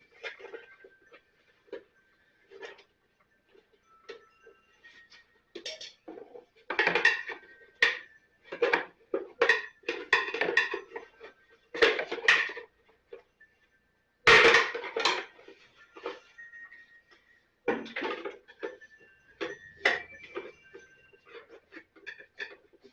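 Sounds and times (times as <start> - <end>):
metal tools clinking and clattering: 4.8 - 12.7, 14.3 - 16.8, 17.7 - 22.9.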